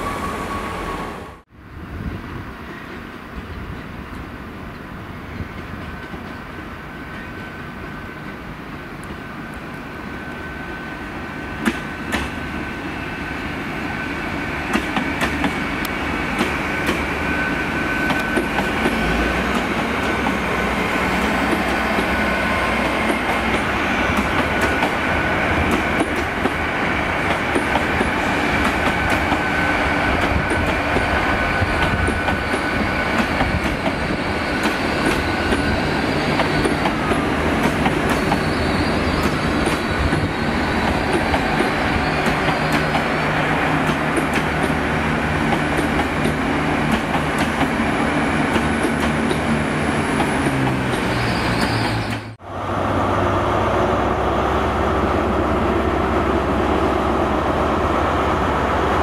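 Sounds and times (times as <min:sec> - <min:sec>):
train passing: 0:00.0 - 0:59.0
high-pitched wheel squeal: 0:38.0 - 0:43.0, 0:50.5 - 0:52.4.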